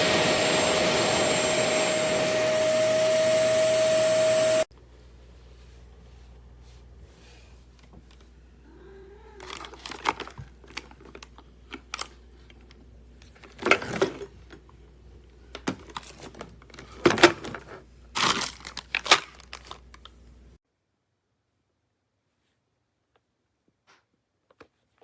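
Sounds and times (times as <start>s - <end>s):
crinkling and rustling: 9.4s - 14.7s, 15.5s - 20.3s.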